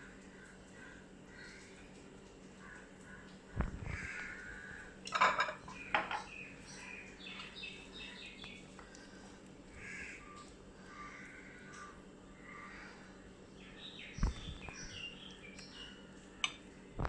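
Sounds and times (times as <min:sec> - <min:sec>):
faint birds calling: 0:00.0 - 0:17.0
utensil clattering against cookware: 0:05.1 - 0:06.3.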